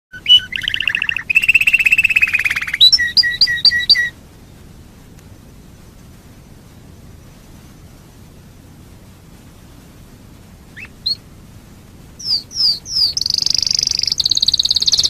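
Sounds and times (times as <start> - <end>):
canary singing trills: 0.1 - 4.2, 10.7 - 11.2, 12.2 - 15.0
faint hiss: 0.1 - 15.0.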